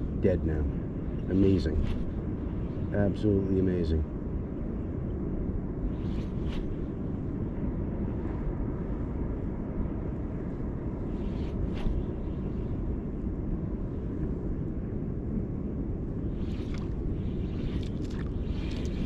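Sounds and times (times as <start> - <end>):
wind and water rumble: 0.0 - 19.0.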